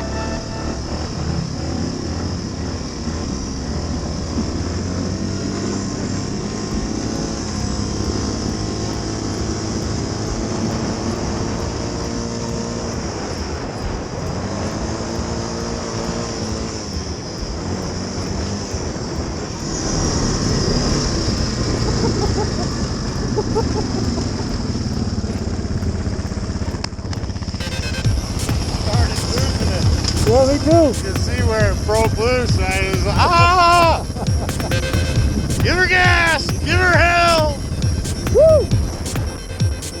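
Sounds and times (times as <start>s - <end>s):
all-terrain vehicle engine revving: 0.0s - 40.0s.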